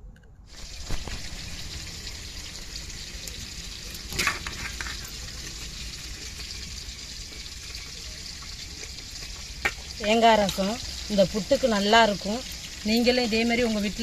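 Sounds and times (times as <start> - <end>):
fish sizzling in hot oil: 0.5 - 14.0.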